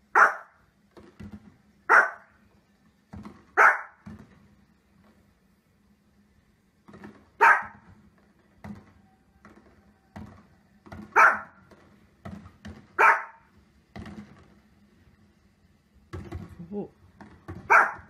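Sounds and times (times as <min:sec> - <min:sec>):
dog barking: 0:00.1 - 0:00.6, 0:01.9 - 0:02.4, 0:03.6 - 0:04.0, 0:07.4 - 0:07.9, 0:11.1 - 0:11.6, 0:13.0 - 0:13.5, 0:17.6 - 0:18.0.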